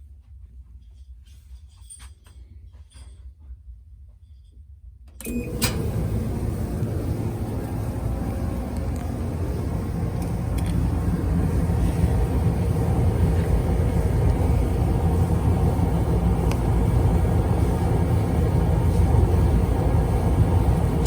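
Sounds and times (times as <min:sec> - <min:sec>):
clothes dryer running: 0:05.2 - 0:21.0.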